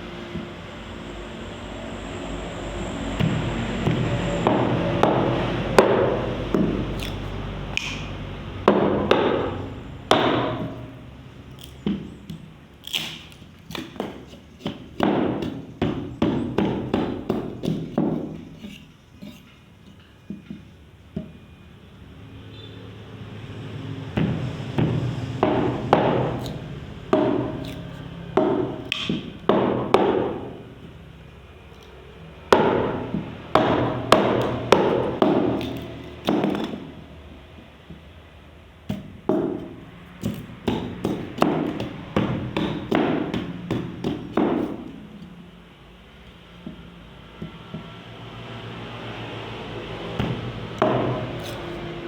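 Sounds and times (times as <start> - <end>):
tool knocking on bamboo: 3.2 - 7.1, 7.8 - 10.9, 13.7 - 18.6, 24.2 - 27.8, 28.4 - 30.6, 32.5 - 37.0, 38.9 - 45.1, 50.2 - 51.4.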